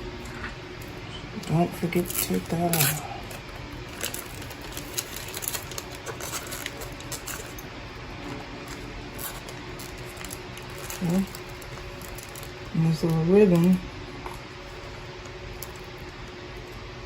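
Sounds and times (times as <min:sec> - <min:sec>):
faint steady hum: 0:00.0 - 0:17.0
small parts clicking and rustling: 0:02.0 - 0:07.7, 0:08.7 - 0:13.7.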